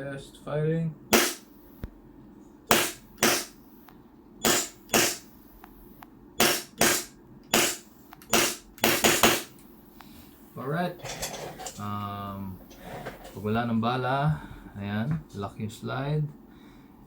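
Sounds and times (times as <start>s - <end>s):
airsoft pistol shots: 1.1s - 1.5s, 2.7s - 3.6s, 4.4s - 5.3s, 6.4s - 9.5s.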